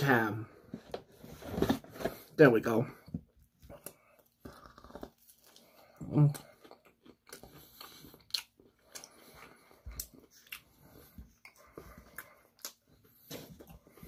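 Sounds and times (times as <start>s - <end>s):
crunchy chewing: 3.8s - 14.0s.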